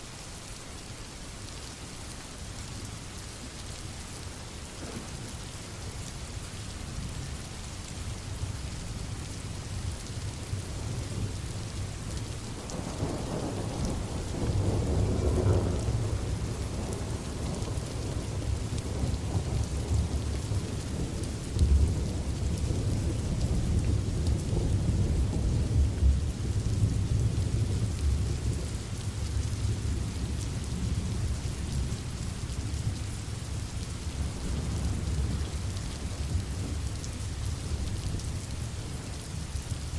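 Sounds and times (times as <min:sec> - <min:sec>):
steady rain: 0:00.0 - 0:39.9
rolling thunder: 0:12.6 - 0:28.7.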